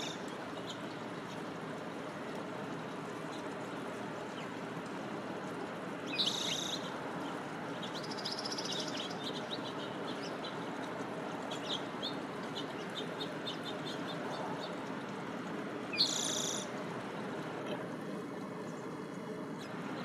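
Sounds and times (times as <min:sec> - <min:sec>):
low rushing background noise: 0:00.0 - 0:20.0
finches chirping and singing: 0:07.8 - 0:10.7.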